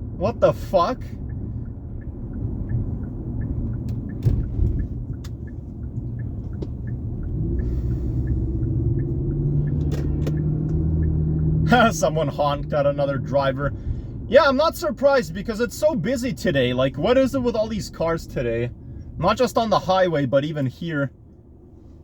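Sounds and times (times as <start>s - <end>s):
car road rumble: 0.0s - 22.0s
faint even ticking: 1.2s - 11.5s.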